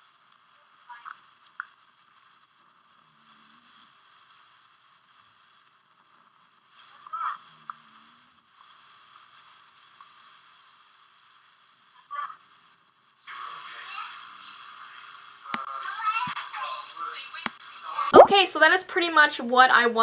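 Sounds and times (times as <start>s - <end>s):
brief louder sound: 18.2s - 18.4s.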